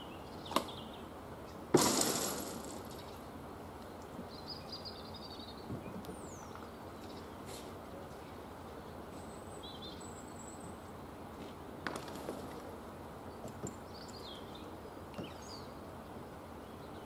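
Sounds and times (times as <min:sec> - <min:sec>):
bird chirps: 0:00.0 - 0:01.6, 0:02.7 - 0:03.3, 0:03.9 - 0:07.5, 0:08.8 - 0:10.8, 0:13.3 - 0:15.8.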